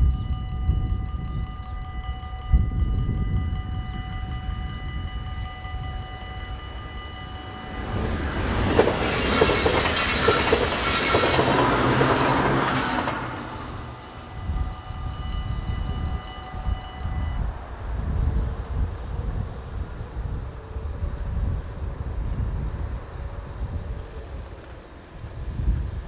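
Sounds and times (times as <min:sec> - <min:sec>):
train rumble and wheel clatter: 0:00.0 - 0:26.0
level crossing bells ringing: 0:00.3 - 0:08.8.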